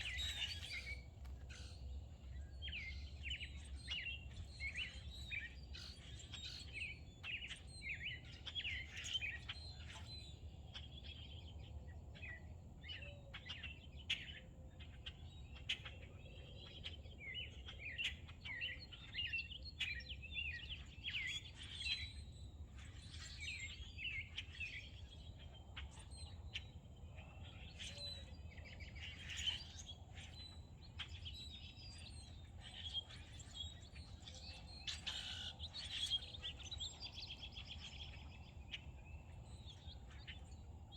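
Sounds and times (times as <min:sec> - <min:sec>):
songbirds chirping and singing: 0:00.0 - 0:40.9.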